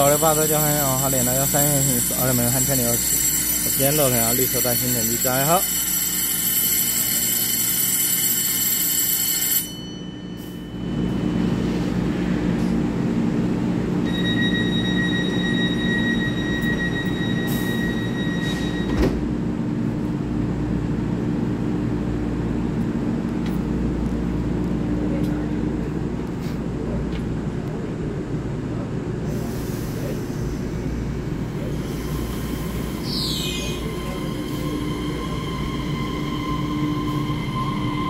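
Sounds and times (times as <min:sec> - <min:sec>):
steady high beep: 0:00.0 - 0:05.9, 0:14.0 - 0:19.0
platform bell ringing: 0:00.0 - 0:11.6, 0:14.0 - 0:19.0, 0:33.8 - 0:38.0
electric train humming: 0:00.0 - 0:38.0.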